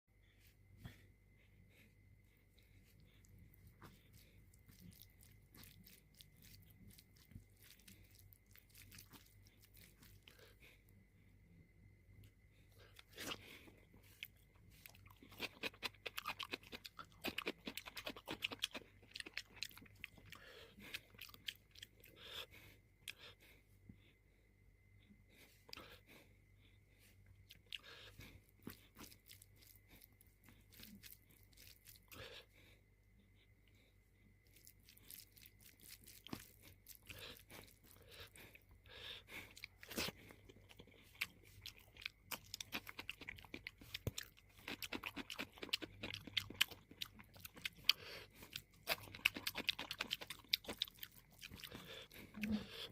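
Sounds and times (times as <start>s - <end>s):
person chewing crunchy food: 0.4s - 24.2s, 25.1s - 52.9s.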